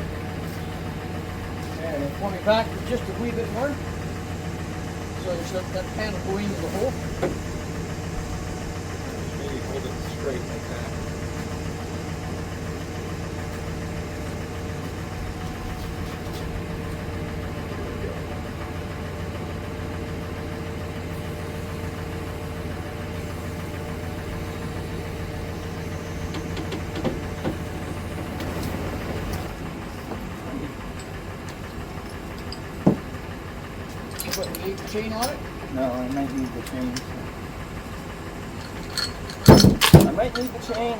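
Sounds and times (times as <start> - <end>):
vehicle engine idling: 0.0 - 40.9
light clanks: 33.9 - 37.3, 38.0 - 40.9.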